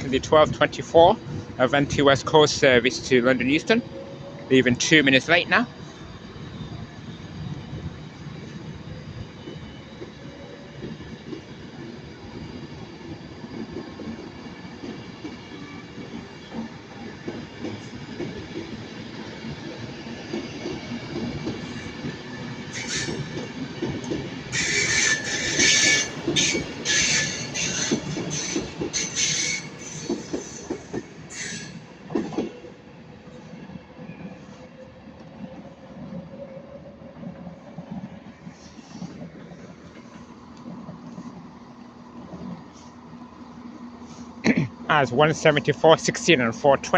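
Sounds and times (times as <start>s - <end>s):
train wheels rumbling on rails: 0.0s - 46.9s
high wheel squeals: 21.7s - 23.4s, 24.5s - 31.8s.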